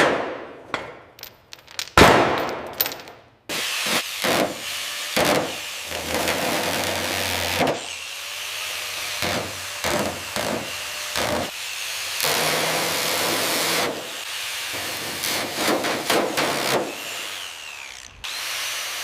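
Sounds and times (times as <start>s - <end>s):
motor humming: 16.9s - 19.0s.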